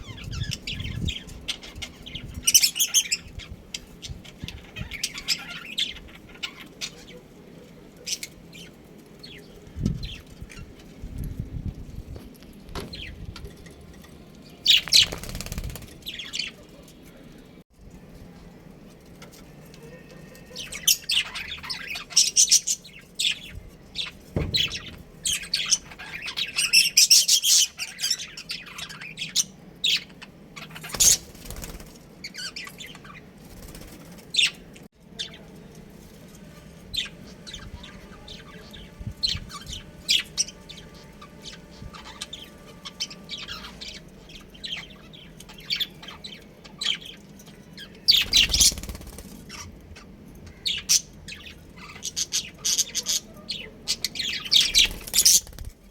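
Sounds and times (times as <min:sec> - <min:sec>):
budgerigars chirping and chattering: 0:00.0 - 0:07.3, 0:20.5 - 0:34.6, 0:36.9 - 0:55.7.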